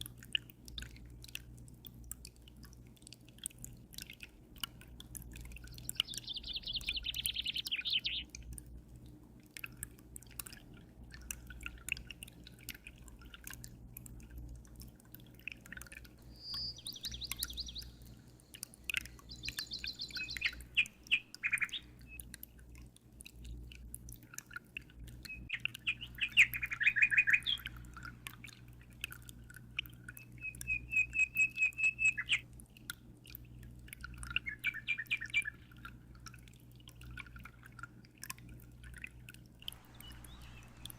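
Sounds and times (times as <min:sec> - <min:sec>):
faint water dripping: 0:00.0 - 0:40.9
birds chirping in trills: 0:05.7 - 0:08.3, 0:16.2 - 0:22.3, 0:25.3 - 0:28.5, 0:30.2 - 0:32.4, 0:34.3 - 0:35.7, 0:39.7 - 0:40.9
steady low hum: 0:39.7 - 0:40.9.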